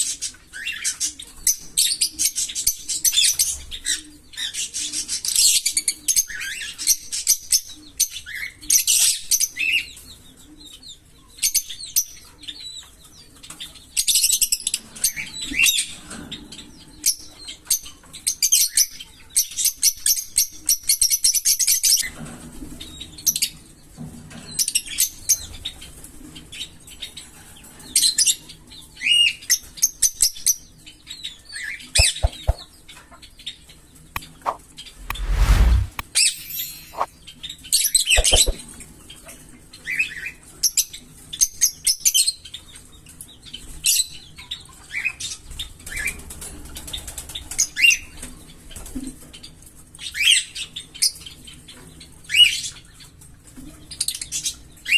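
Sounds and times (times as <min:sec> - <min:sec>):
parrots chirping and chattering: 0:32.0 - 0:32.6.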